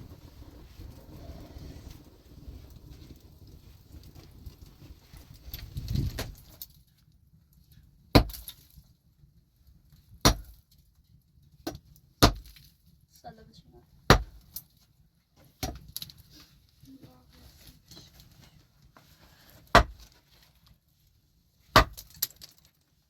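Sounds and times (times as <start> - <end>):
low rumbling noise: 0.0 - 6.4.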